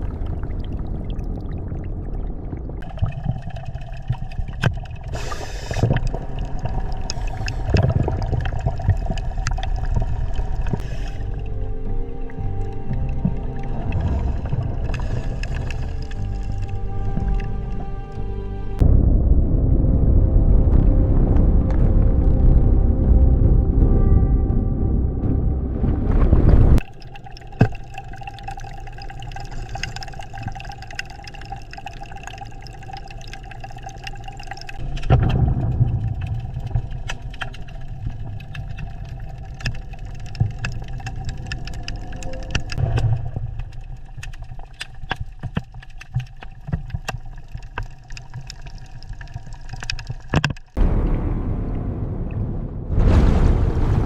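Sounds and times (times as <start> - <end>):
water dripping and trickling: 0.0 - 18.5, 26.8 - 51.2
loud low rumble: 18.5 - 26.8, 34.8 - 38.5, 50.8 - 54.0
small clicks: 36.1 - 50.8.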